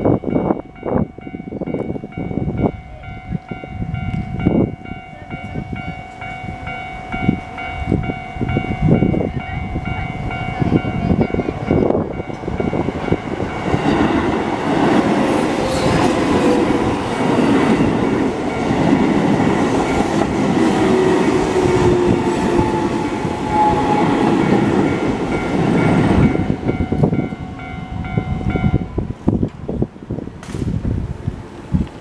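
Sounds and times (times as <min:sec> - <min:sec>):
level crossing warning bell: 0:00.0 - 0:29.1
train wheels clattering on rails: 0:11.0 - 0:27.4.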